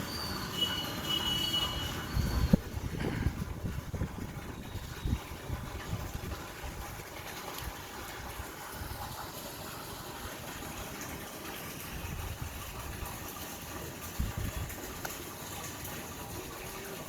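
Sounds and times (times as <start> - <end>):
rain falling: 0.0 - 17.0
wind buffeting microphone: 2.0 - 9.2, 11.8 - 13.4, 14.0 - 15.0.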